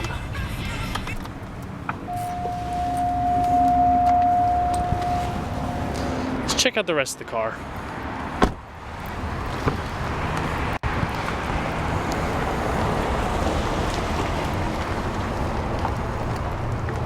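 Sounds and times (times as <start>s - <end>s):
wind rushing over microphone: 1.4s - 6.5s.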